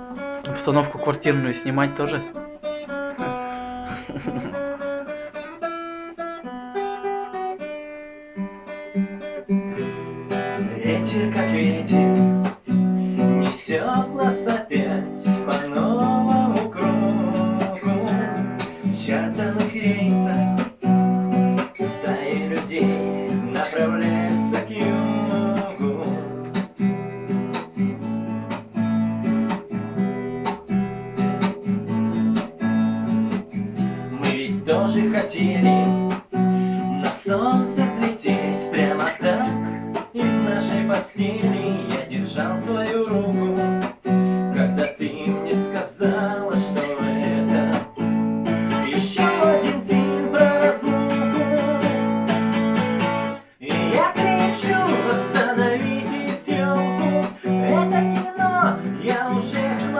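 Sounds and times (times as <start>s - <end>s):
acoustic guitar picked notes: 0.0s - 59.9s
person singing: 0.4s - 2.4s, 3.2s - 4.9s, 9.8s - 20.8s, 21.6s - 26.8s, 33.2s - 59.9s.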